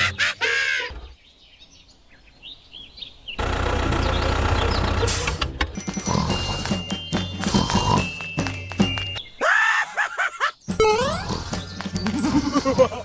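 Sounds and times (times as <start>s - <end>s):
birds chirping: 0.0s - 13.0s
engine humming: 1.9s - 9.4s.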